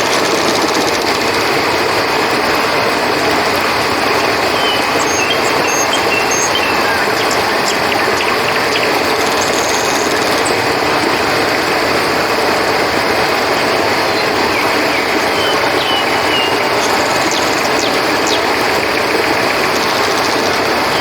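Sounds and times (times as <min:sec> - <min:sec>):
river water flowing: 0:00.0 - 0:21.0
faint high chirps: 0:04.1 - 0:10.8, 0:13.8 - 0:21.0.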